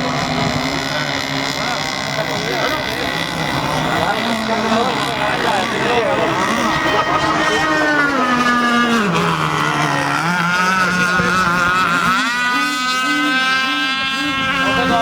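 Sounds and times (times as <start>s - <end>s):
model boat engines buzzing whine: 0.0s - 15.0s.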